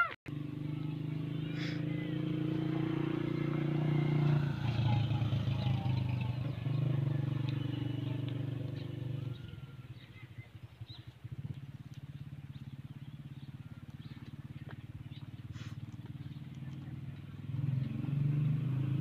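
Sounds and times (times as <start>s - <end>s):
motor engine humming: 0.0s - 18.4s.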